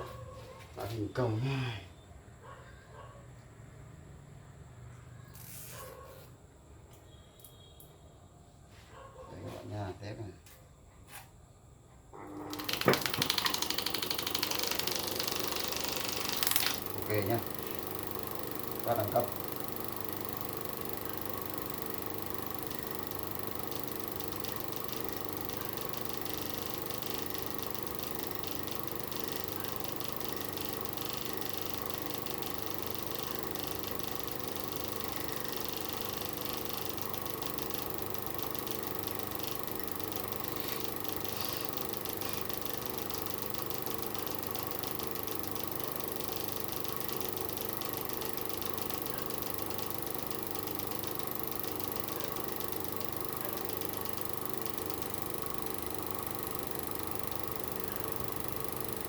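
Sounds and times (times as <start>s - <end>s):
electric fan motor humming: 12.1s - 59.0s.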